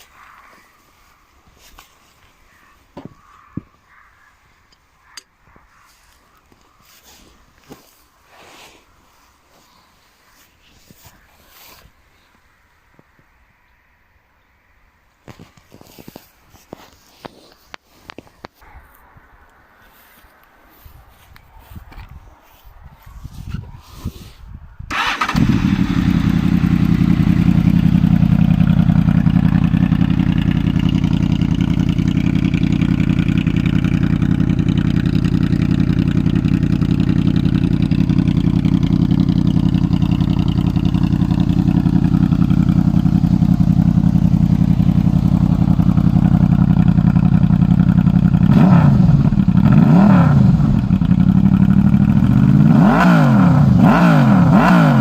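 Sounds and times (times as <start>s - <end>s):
motorcycle engine idling and revving: 24.9s - 55.0s.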